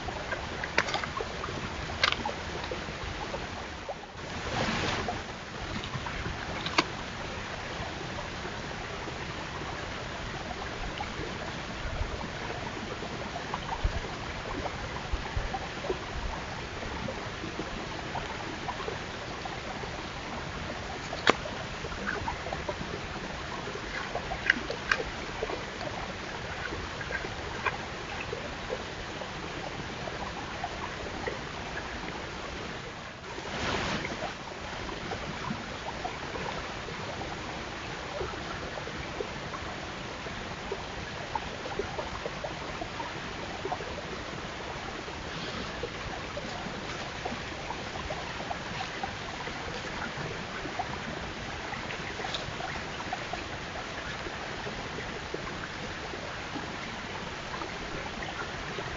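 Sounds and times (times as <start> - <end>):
steady hiss: 44.3 - 58.8.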